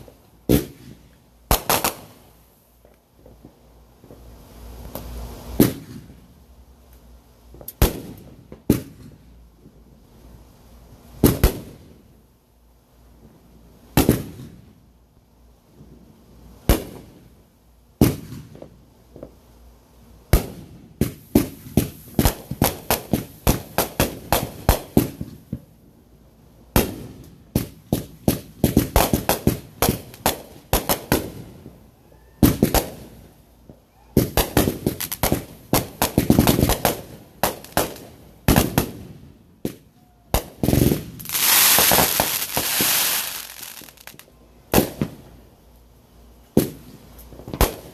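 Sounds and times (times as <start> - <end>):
fireworks bangs: 0.0 - 6.2, 26.7 - 45.4, 46.6 - 47.9.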